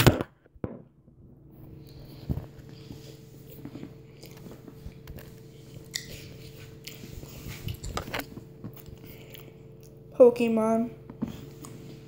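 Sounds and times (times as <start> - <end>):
person chewing crunchy food: 1.8 - 10.1.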